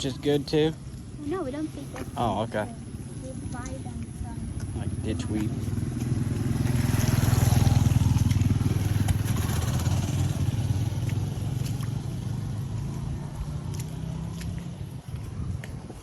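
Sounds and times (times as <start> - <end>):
vehicle engine passing by: 4.8 - 15.9.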